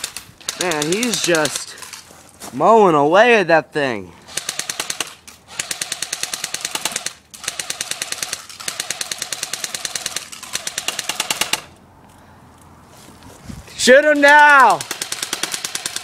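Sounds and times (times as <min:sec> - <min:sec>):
airsoft gun firing full auto: 0:00.0 - 0:01.6, 0:04.3 - 0:11.8, 0:14.2 - 0:16.0.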